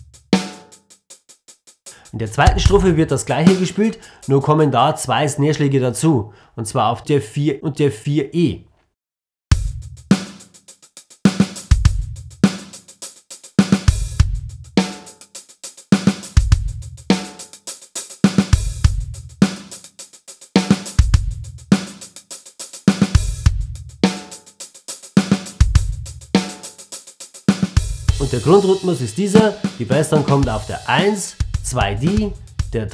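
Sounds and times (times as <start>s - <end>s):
snare drum: 0.0s - 4.0s, 9.5s - 32.9s
hi-hat: 0.0s - 4.7s, 9.5s - 32.9s
bass drum: 2.2s - 3.8s, 9.5s - 10.3s, 11.6s - 12.4s, 13.9s - 14.8s, 16.4s - 17.1s, 18.6s - 19.4s, 21.0s - 21.7s, 23.2s - 24.0s, 25.6s - 26.4s, 27.8s - 32.9s.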